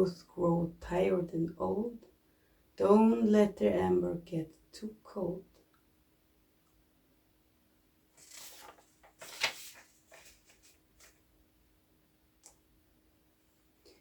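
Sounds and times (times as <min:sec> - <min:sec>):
rustling and scraping: 0:08.2 - 0:11.2.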